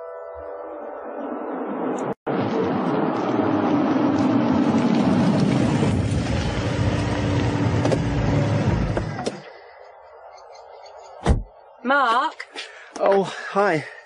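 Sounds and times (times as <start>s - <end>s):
car engine running: 4.3s - 9.3s.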